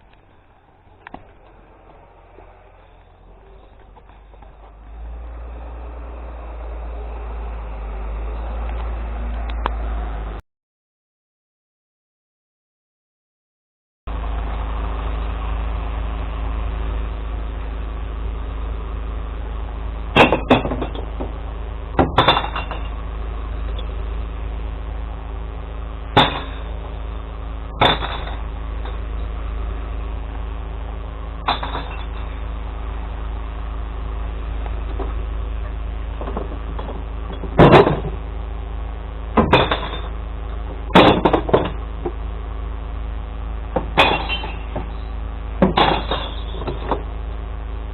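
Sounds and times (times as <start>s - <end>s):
truck engine idling: 0.0s - 10.4s, 14.1s - 47.9s
glass bottles crashing: 22.0s - 23.0s, 26.2s - 26.7s, 27.8s - 28.4s, 31.4s - 32.4s, 39.4s - 40.1s, 41.0s - 41.8s, 43.8s - 44.9s, 45.6s - 46.9s.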